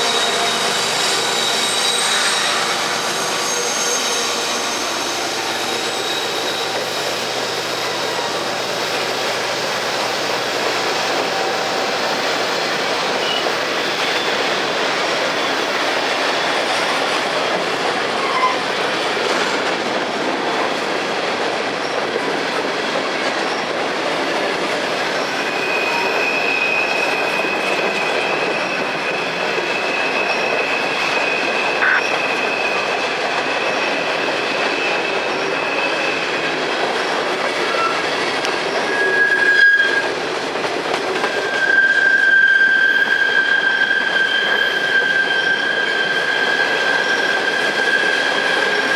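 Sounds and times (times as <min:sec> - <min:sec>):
low wheel squeal: 0:00.0 - 0:08.9, 0:11.0 - 0:18.9, 0:25.3 - 0:36.3, 0:37.7 - 0:38.0, 0:38.8 - 0:40.1, 0:41.2 - 0:48.9
high wheel squeal: 0:00.0 - 0:19.7, 0:25.2 - 0:40.2, 0:41.2 - 0:48.9
train wheels clacking: 0:00.0 - 0:48.9.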